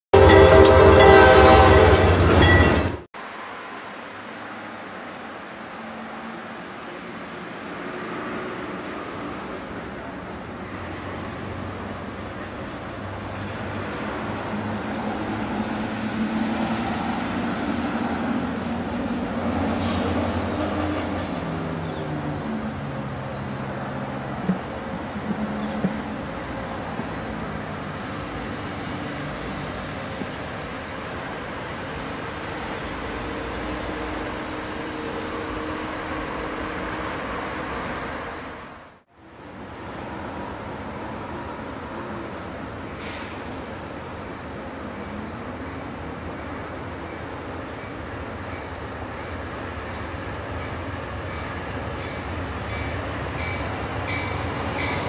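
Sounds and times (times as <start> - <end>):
loud train horn chord: 0.1 - 2.7, 19.6 - 21.6, 33.0 - 39.0
diesel locomotive engine drone: 0.1 - 55.0.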